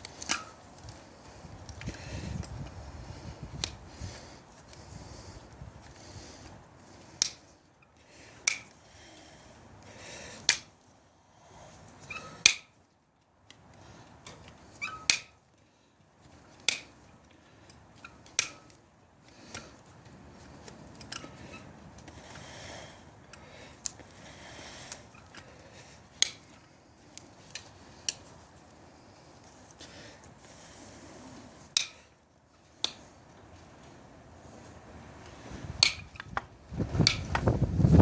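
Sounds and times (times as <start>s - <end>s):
hoof nippers snapping: 7.2s - 7.4s, 8.4s - 8.7s, 10.4s - 10.7s, 16.6s - 16.9s, 26.2s - 26.5s.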